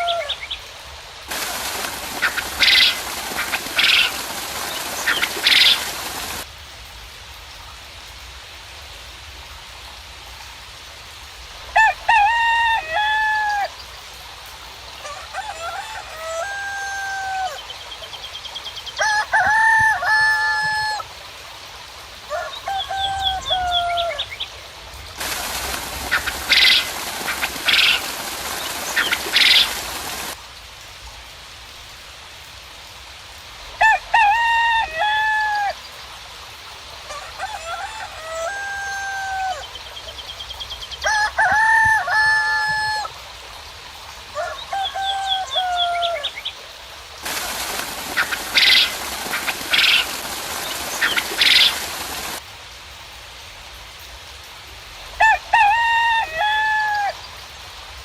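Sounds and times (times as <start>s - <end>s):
roosters crowing: 0.0s - 0.4s, 1.3s - 6.4s, 11.7s - 13.7s, 15.0s - 17.7s, 19.0s - 21.1s, 22.3s - 24.3s, 25.2s - 30.4s, 33.8s - 35.8s, 37.1s - 39.8s, 41.0s - 43.1s, 44.3s - 46.4s, 47.2s - 52.4s, 55.2s - 57.2s
steady hiss: 0.0s - 56.3s, 57.1s - 58.0s
small birds chirping: 1.3s - 6.4s, 25.2s - 30.4s, 47.2s - 52.4s.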